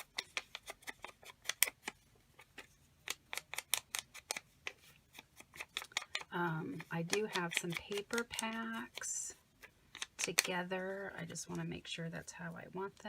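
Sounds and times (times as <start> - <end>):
scissors snipping paper: 0.0 - 9.2, 9.9 - 10.7.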